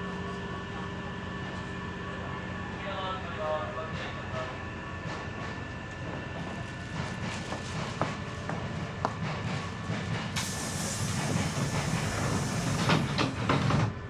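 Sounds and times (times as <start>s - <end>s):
electric train rumbling: 0.0s - 14.0s
wheels clicking over rail joints: 9.0s - 14.0s
loud air hiss: 10.4s - 13.6s.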